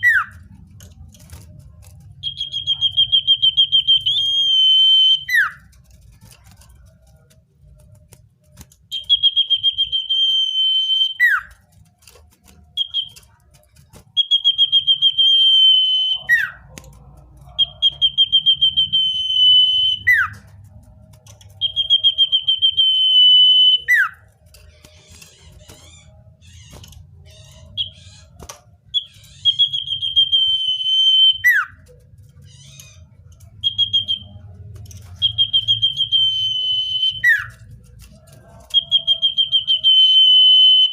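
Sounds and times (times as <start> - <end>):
bird trilled whistle: 2.2 - 5.6, 8.9 - 11.6, 12.8 - 13.2, 14.1 - 16.6, 17.6 - 20.4, 21.6 - 24.2, 28.9 - 31.8, 33.6 - 34.4, 35.2 - 37.5, 38.7 - 40.9.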